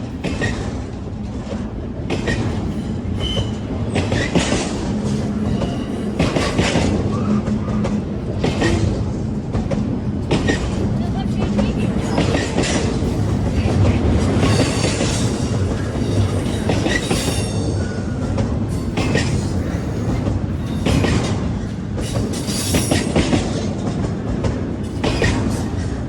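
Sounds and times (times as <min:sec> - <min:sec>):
railroad cars rumbling past: 0:00.0 - 0:26.0
wheels clicking over rail joints: 0:00.1 - 0:26.0
faint high wheel squeal: 0:02.7 - 0:03.7.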